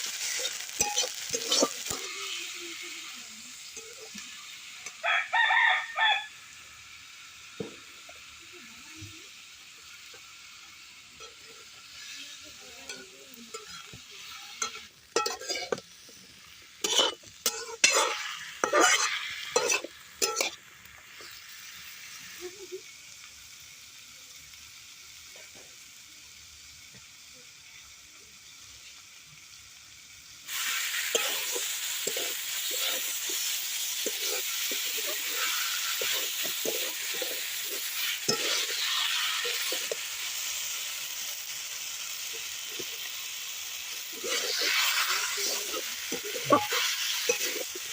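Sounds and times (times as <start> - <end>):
food sizzling in hot oil: 0.0 - 47.9
spatula scraping pot: 0.2 - 2.5, 12.8 - 15.8, 16.8 - 20.6, 31.0 - 40.1, 44.1 - 47.9.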